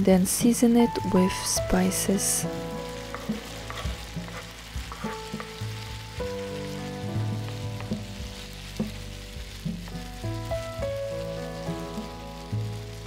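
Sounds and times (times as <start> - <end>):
food sizzling in a frying pan: 0.0 - 13.0
soft background music: 0.0 - 13.0
wooden spoon knocking on a pan: 3.1 - 5.6, 7.2 - 9.0.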